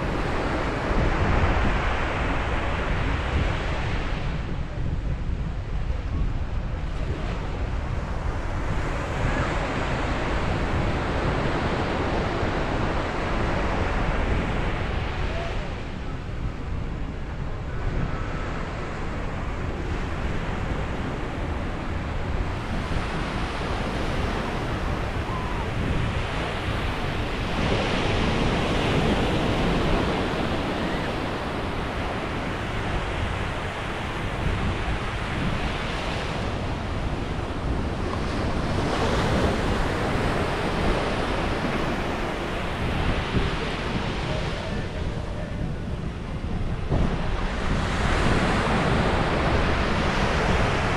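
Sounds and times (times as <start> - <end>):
wind buffeting microphone: 0.0 - 50.9
ocean waves breaking: 17.8 - 50.9.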